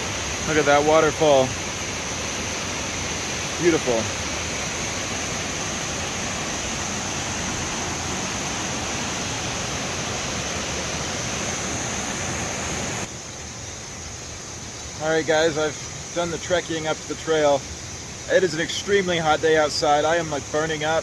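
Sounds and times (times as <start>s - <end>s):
waterfall roaring: 0.0s - 13.1s.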